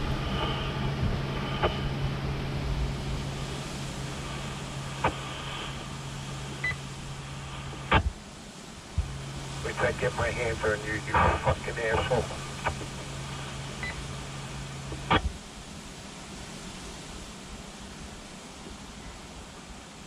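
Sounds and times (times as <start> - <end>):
low carrier hum: 0.0 - 16.2
radio static hiss: 0.0 - 20.0
sharp radio clicks: 1.5 - 1.8, 4.1 - 8.2, 9.0 - 15.3.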